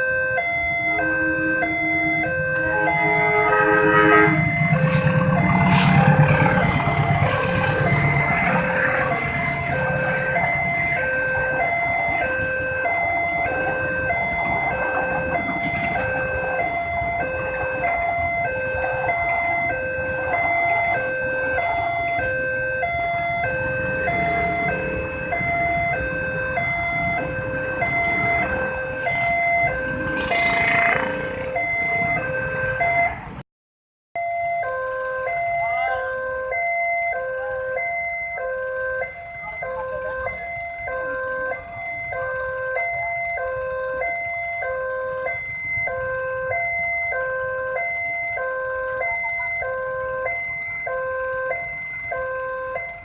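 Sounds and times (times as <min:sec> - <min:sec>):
level crossing two-tone alarm: 0:00.0 - 0:33.2, 0:34.2 - 0:53.0
rumbling vehicle noise: 0:00.0 - 0:33.4.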